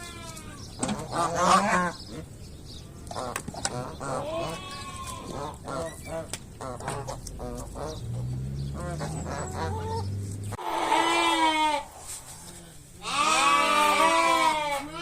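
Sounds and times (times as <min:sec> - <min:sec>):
sheep bleating: 0:04.2 - 0:05.4, 0:10.6 - 0:11.9, 0:13.0 - 0:15.0.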